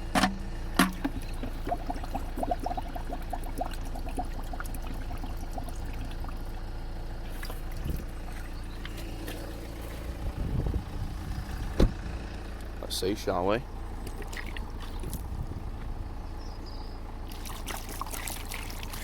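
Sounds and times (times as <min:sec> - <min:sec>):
water filling a container: 0:00.8 - 0:09.4, 0:14.0 - 0:15.4, 0:17.2 - 0:19.0.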